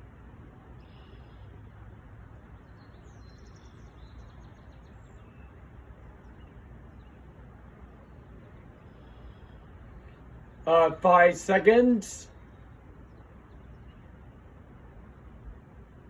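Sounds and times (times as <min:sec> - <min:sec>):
faint bird chirps: 0:00.8 - 0:01.7, 0:02.5 - 0:07.3, 0:08.0 - 0:10.6.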